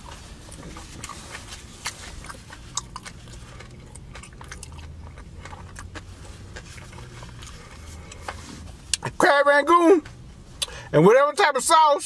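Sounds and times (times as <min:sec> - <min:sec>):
man chewing crunchy food: 0:00.0 - 0:09.1
low steady hum: 0:00.0 - 0:12.0.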